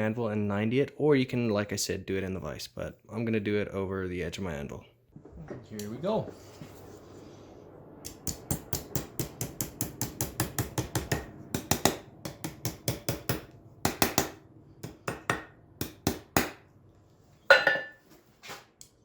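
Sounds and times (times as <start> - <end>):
loud ringing clang: 17.5 - 18.0.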